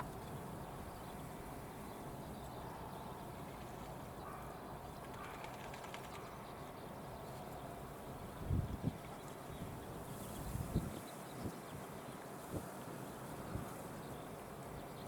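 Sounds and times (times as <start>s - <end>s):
faint bird calls: 0.0s - 7.8s.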